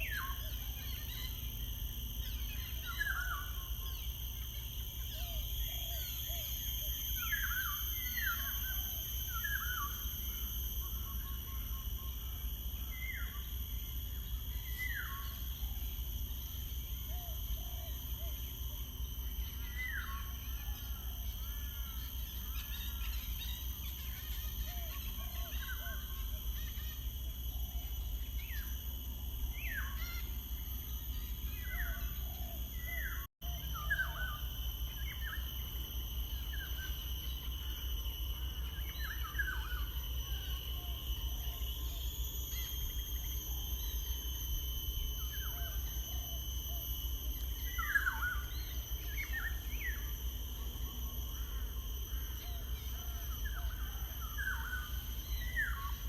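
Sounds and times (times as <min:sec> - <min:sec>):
high-pitched insect drone: 0:00.0 - 0:56.0.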